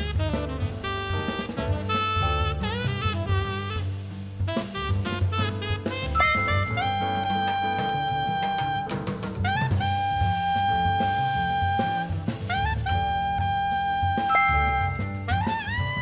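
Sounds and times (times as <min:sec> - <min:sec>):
saxophone long notes: 0:00.0 - 0:03.9, 0:04.8 - 0:08.8, 0:14.3 - 0:16.0
drum kit: 0:00.0 - 0:16.0
walking bass: 0:00.0 - 0:16.0.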